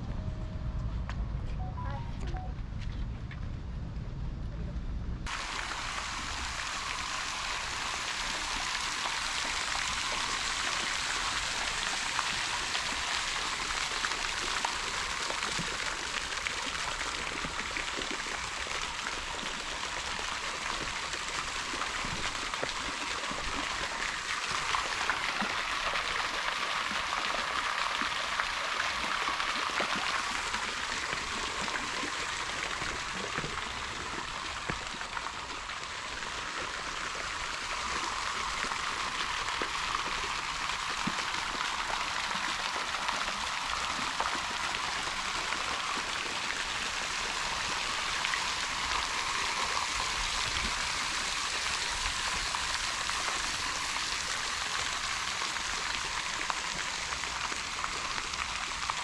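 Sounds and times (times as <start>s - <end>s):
stream water rushing: 5.3s - 59.0s.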